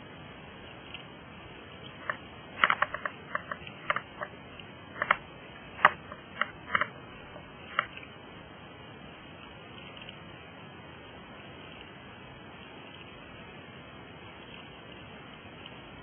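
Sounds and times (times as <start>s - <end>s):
low hiss: 0.0s - 16.0s
sharp clicks and taps: 2.0s - 7.0s, 7.7s - 8.0s.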